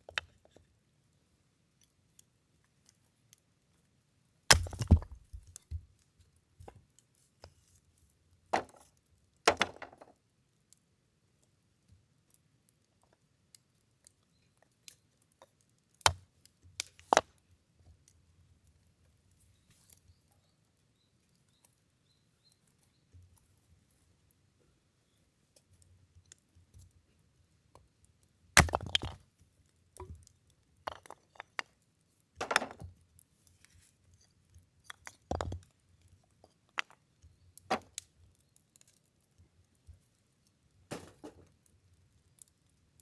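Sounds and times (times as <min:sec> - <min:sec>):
firewood chopping blows: 0:04.5 - 0:05.5, 0:40.9 - 0:41.5.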